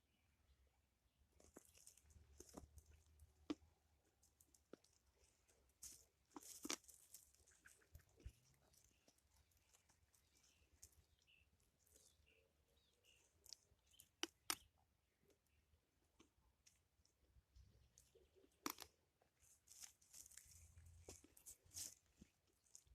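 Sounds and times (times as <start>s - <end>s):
faint footsteps on forest path: 4.2s - 12.4s, 19.4s - 22.9s.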